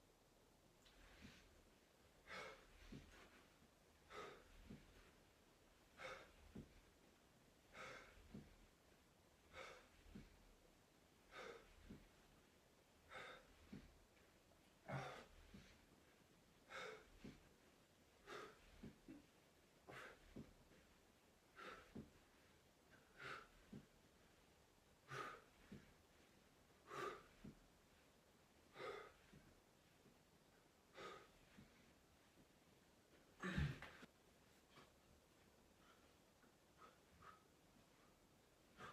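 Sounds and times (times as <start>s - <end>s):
person breathing hard: 2.2s - 5.3s, 5.9s - 7.0s, 7.6s - 8.8s, 9.4s - 10.6s, 11.2s - 12.4s, 13.0s - 14.0s, 14.8s - 20.9s, 21.5s - 24.4s, 25.0s - 28.0s, 28.7s - 29.6s, 30.9s - 31.9s, 35.8s - 38.9s.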